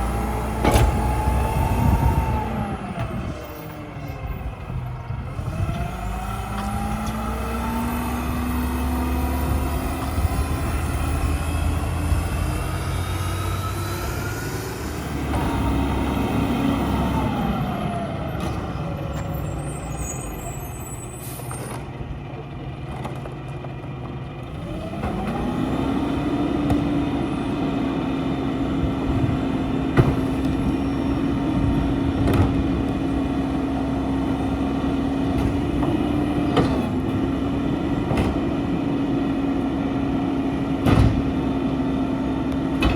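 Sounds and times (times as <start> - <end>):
garbage truck engine revving: 0.0 - 42.9
sharp knocks and clunks: 29.9 - 30.6, 40.8 - 41.4.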